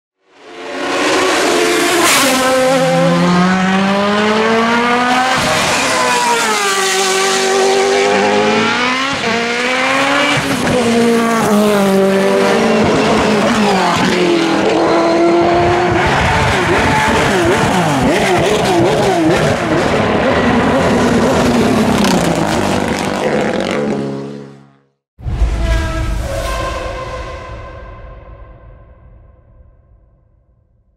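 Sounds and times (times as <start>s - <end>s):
race car engines revving: 0.4s - 24.6s
warbling squeal: 25.4s - 29.7s.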